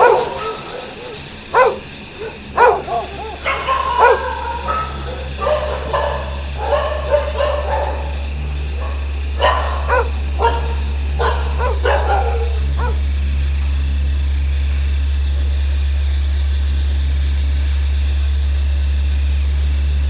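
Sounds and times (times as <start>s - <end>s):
dogs yelping and barking: 0.0s - 14.3s
steady low hum: 0.0s - 20.0s.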